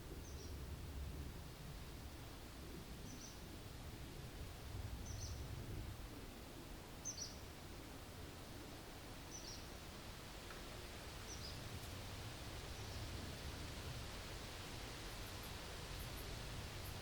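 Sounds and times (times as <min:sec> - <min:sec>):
songbird chirping: 0:03.0 - 0:03.5, 0:05.0 - 0:05.5, 0:07.0 - 0:07.5, 0:09.2 - 0:09.8, 0:10.5 - 0:12.0, 0:12.6 - 0:13.2.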